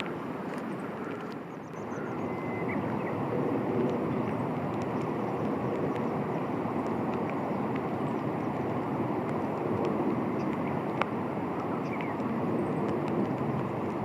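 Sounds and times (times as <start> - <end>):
steady background noise: 0.0 - 14.0
faint bird chirps: 1.5 - 3.2.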